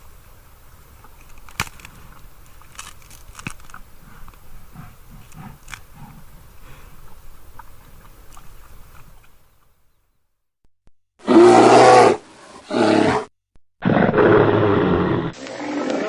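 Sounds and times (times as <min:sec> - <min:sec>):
faint crunching clicks: 0:01.0 - 0:06.2, 0:06.9 - 0:09.7
bear roaring: 0:04.0 - 0:06.9, 0:11.2 - 0:16.0.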